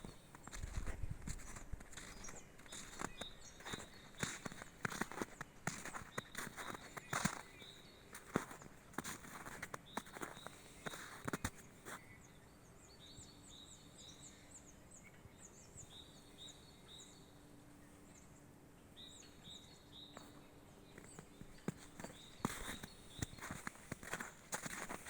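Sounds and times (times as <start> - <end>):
footsteps: 0.0 - 7.5, 21.0 - 25.0
faint bird chirps and whistles: 0.0 - 18.4, 19.0 - 25.0.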